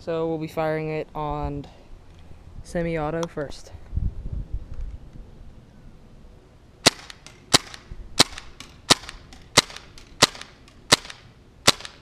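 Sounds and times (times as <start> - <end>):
airsoft gun shots: 6.8 - 12.0.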